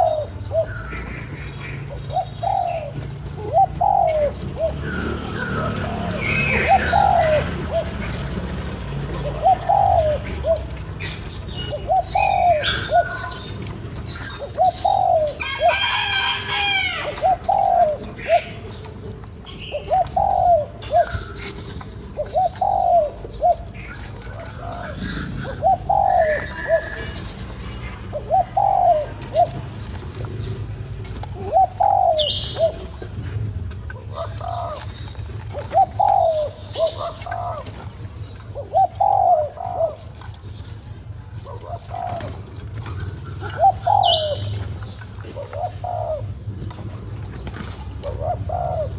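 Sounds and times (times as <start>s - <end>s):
dove cooing: 0.0s - 48.9s
small birds chirping faintly: 0.0s - 48.9s.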